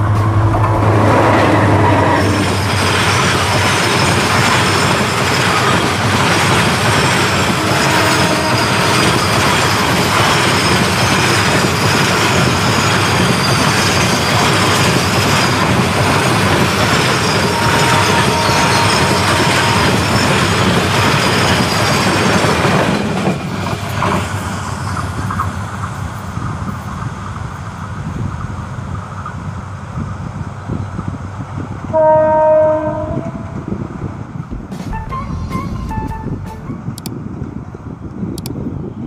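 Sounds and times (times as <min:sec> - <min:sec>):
low rumble: 0:00.0 - 0:02.8, 0:33.2 - 0:37.6
freight train wheel rumble and clatter: 0:00.0 - 0:39.0.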